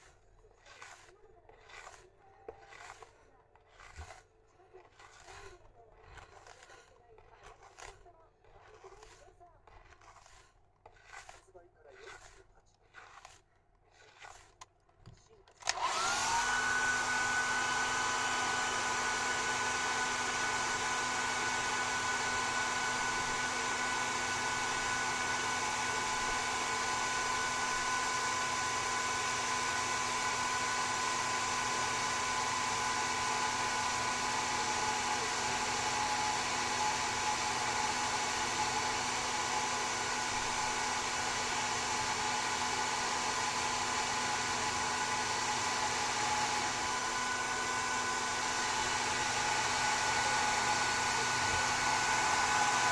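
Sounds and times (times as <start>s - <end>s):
hair dryer running: 0.0s - 3.1s, 4.9s - 8.0s, 15.6s - 52.9s.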